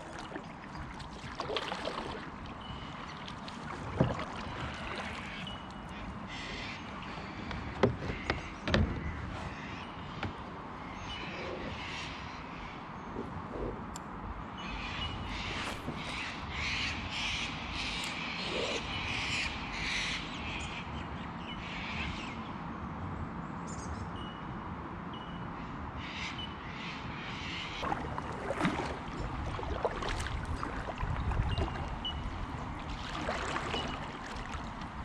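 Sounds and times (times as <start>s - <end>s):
water: 0.0s - 35.0s
wind: 0.0s - 35.0s
birds harsh cawing: 5.2s - 10.2s.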